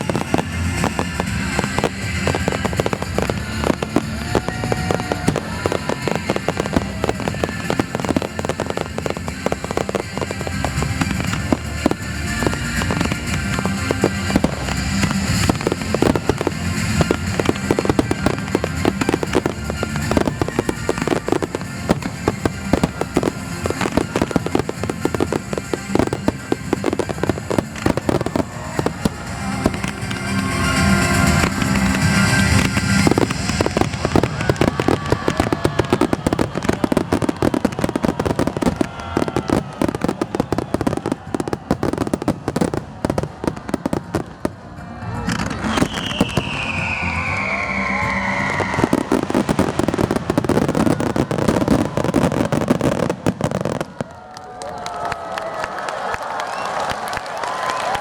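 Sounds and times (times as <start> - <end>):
fireworks booming and crackling: 0.0 - 58.0.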